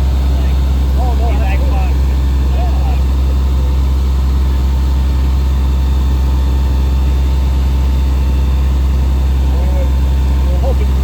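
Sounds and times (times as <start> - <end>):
fire engine motor humming: 0.0 - 11.0.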